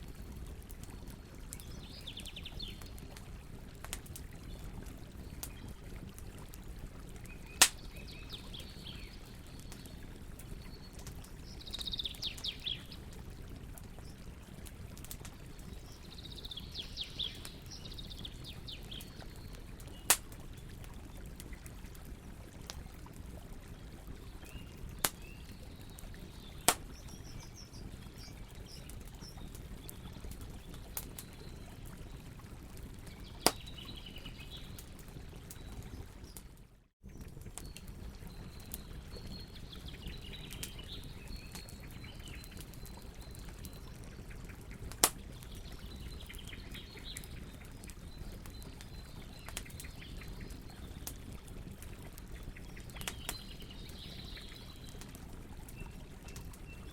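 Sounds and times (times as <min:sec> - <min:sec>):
campfire crackling: 0:00.0 - 0:56.9
fire pops: 0:07.2 - 0:08.0, 0:19.9 - 0:20.8, 0:26.6 - 0:27.4, 0:33.2 - 0:33.9, 0:44.9 - 0:45.5.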